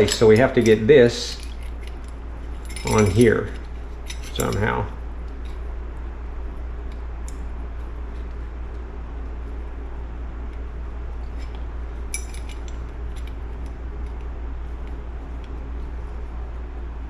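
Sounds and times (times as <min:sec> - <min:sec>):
metal engine parts clinking: 0:00.0 - 0:05.7, 0:11.2 - 0:14.2
steady low hum: 0:00.0 - 0:17.0
ringing metallic clink: 0:02.6 - 0:04.9.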